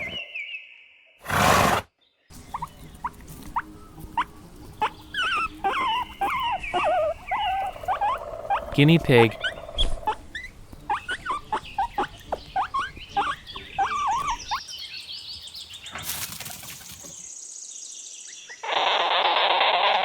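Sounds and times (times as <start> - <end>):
guinea pig squeaking: 2.4 - 14.6.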